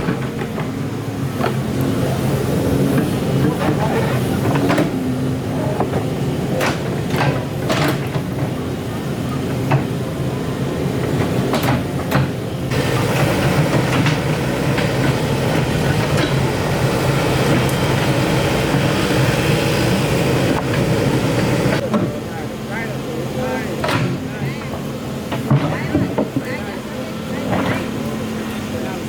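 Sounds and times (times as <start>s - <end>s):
diesel engine running: 0.0s - 29.0s
metallic clanks: 11.5s - 16.7s.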